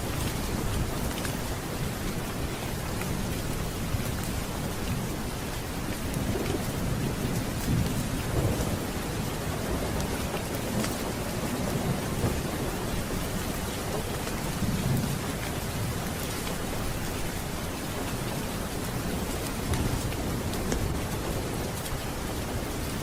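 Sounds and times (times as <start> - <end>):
steady rain: 0.0 - 23.0
thunder rumbling: 3.2 - 16.2.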